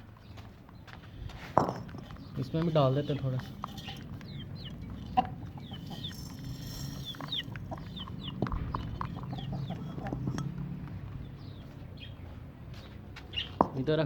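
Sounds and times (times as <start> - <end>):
birds chirping: 0.0 - 14.0
sharp knocks: 8.4 - 10.6.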